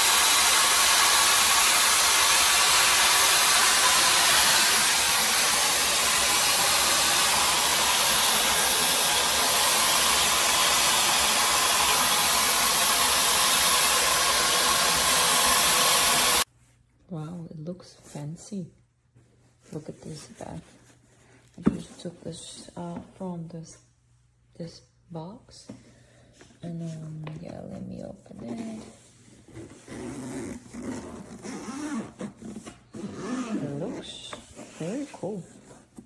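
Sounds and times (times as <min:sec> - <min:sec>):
hair dryer brush blowing air: 0:00.0 - 0:16.5.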